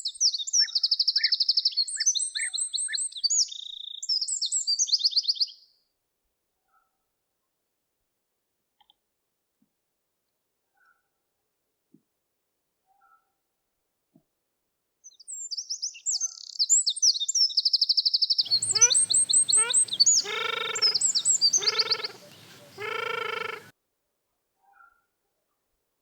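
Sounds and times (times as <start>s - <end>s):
birds twittering trills: 18.5s - 23.7s
harsh lower bird calls: 18.5s - 23.7s.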